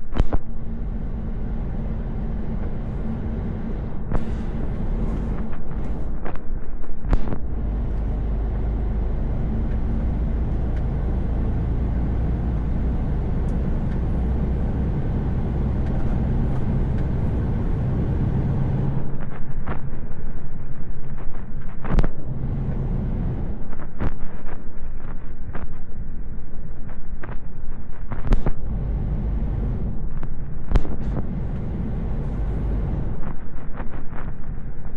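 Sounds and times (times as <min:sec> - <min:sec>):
diesel engine running: 0:00.0 - 0:06.4, 0:07.1 - 0:19.4, 0:22.1 - 0:23.8, 0:28.3 - 0:33.4
tyre and road noise: 0:00.0 - 0:34.9.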